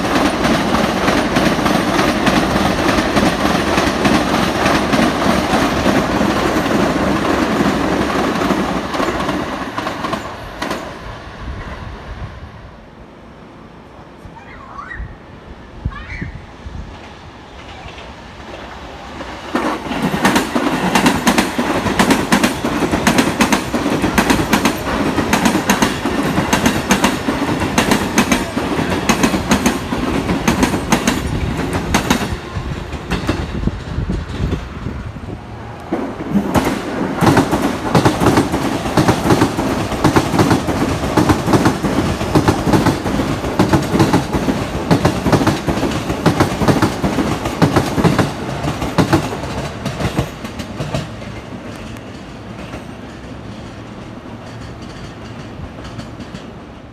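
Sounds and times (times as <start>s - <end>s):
electric trains passing: 0.0s - 56.9s
wheels clacking over rail joints: 17.0s - 35.0s, 35.8s - 56.6s.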